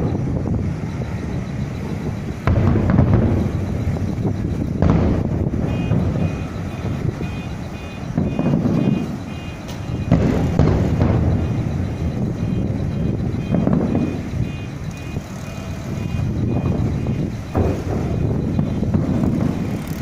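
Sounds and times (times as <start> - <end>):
fireworks booming: 0.0 - 20.0
short high beep: 5.7 - 10.2, 12.4 - 17.3.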